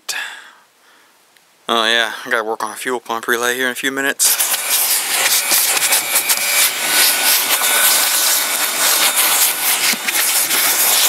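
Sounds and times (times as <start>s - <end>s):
vacuum cleaner running: 4.2s - 11.0s
nozzle scraping and rattling: 4.4s - 11.0s.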